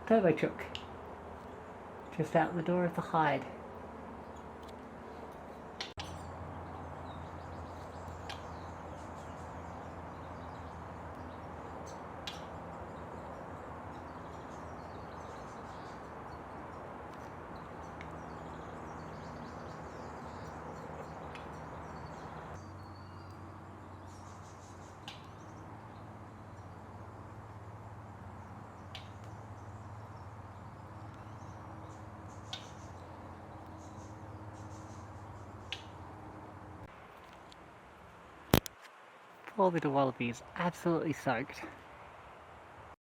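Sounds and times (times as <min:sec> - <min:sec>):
outdoor background hiss: 0:00.0 - 0:43.0
faint bird chirps: 0:05.8 - 0:26.8, 0:28.8 - 0:36.0.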